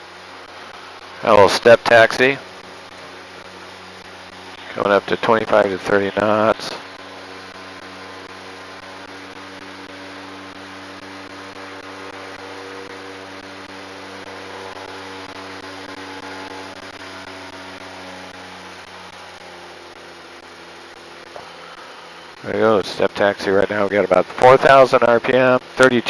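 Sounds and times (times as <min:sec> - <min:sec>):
aircraft engine droning: 0:00.0 - 0:26.0.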